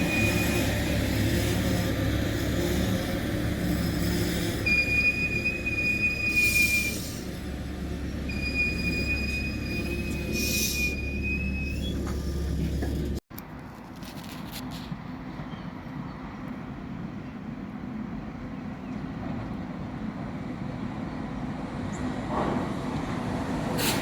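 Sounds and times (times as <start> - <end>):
high wheel squeals: 0.0 - 13.2
train rumbling over rails: 0.0 - 13.2, 14.7 - 24.0.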